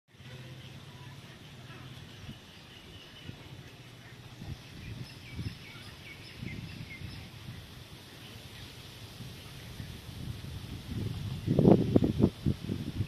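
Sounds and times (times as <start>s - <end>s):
bird chirping: 0.5s - 8.8s
wind rumble on microphone: 2.0s - 13.0s.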